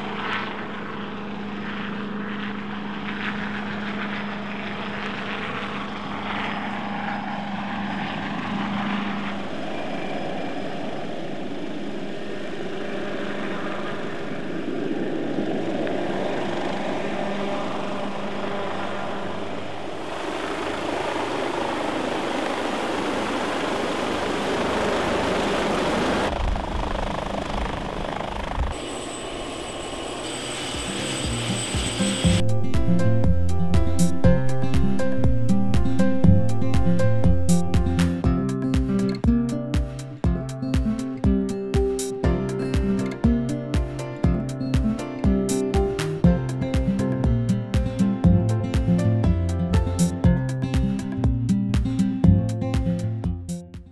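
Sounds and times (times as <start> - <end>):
helicopter rotor and engine: 0.0 - 53.4.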